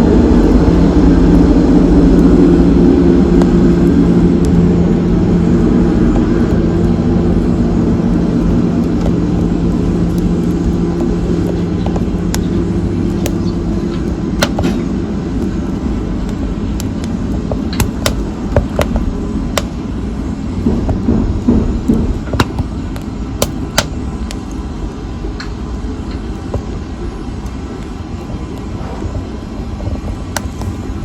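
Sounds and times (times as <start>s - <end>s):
fire rumbling: 0.0s - 31.0s
fire crackling and popping: 0.2s - 31.0s.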